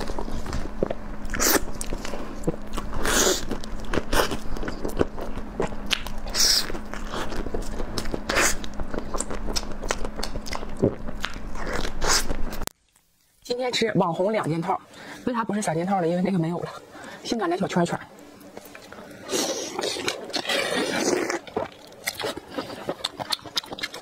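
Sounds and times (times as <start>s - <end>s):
wet chewing and lip smacks: 21.4s - 24.0s.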